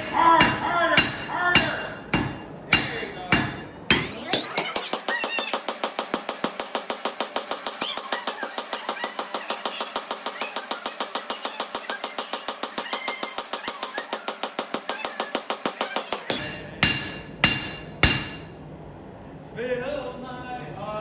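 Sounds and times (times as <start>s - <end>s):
hammer ringing on anvil: 0.0s - 5.8s, 14.4s - 18.5s.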